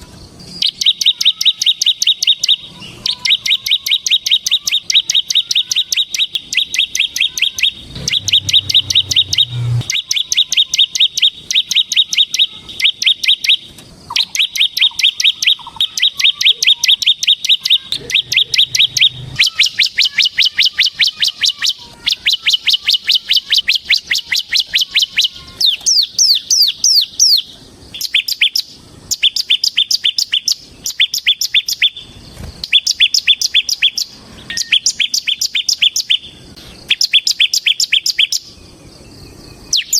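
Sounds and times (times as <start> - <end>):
bird singing high chirps: 0.0 - 39.9
low hum: 7.7 - 9.9.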